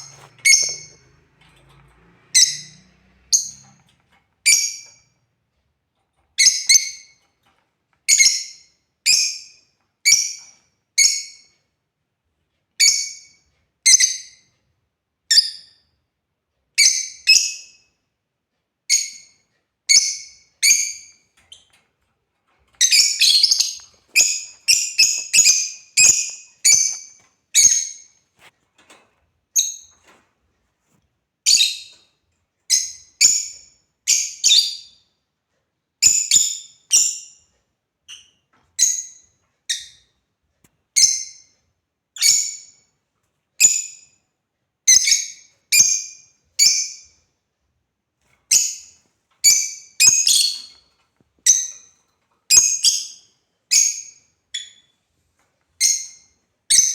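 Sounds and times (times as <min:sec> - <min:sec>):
lovebirds chirping: 0:00.0 - 0:01.0, 0:22.8 - 0:28.2, 0:48.5 - 0:50.8.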